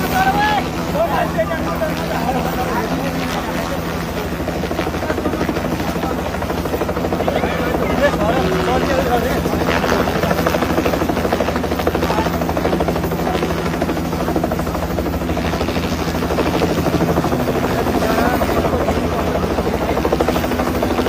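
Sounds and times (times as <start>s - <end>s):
helicopter rotor beating: 0.0s - 21.0s.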